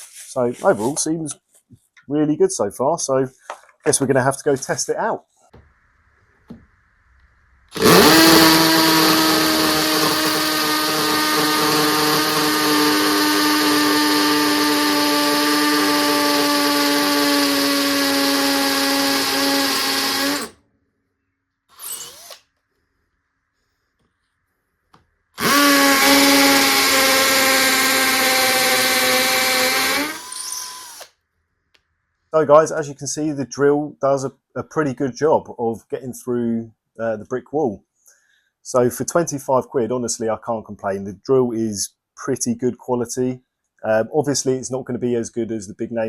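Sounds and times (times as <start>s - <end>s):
hammer drill drilling into brick: 7.7s - 20.6s, 21.7s - 22.5s, 25.4s - 31.1s.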